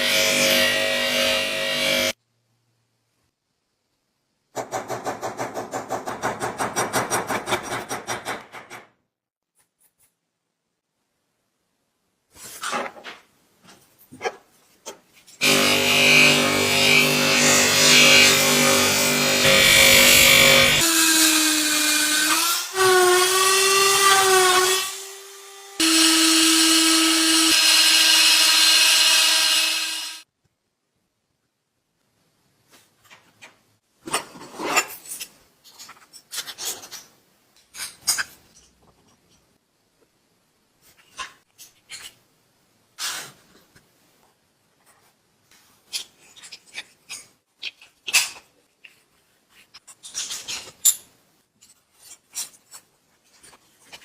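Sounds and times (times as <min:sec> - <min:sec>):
power tool humming: 0:15.4 - 0:21.0, 0:23.8 - 0:30.2.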